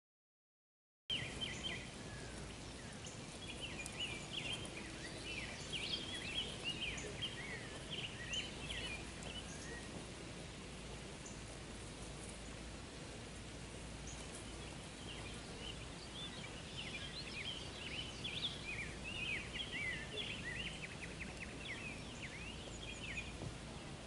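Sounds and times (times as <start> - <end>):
low outdoor background noise: 1.1 - 24.0
small birds chirping: 1.1 - 24.0.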